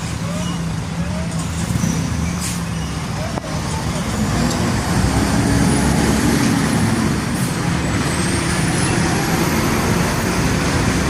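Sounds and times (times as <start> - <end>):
diesel truck engine rumbling: 0.0 - 11.0
traffic and tyre noise: 0.0 - 11.0.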